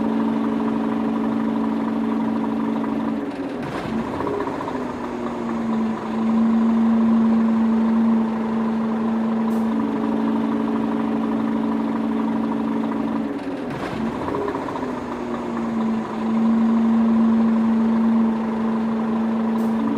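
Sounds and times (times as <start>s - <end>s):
small motor humming: 3.9s - 13.3s, 14.0s - 19.9s
higher motor tone: 4.0s - 13.3s, 14.1s - 19.9s.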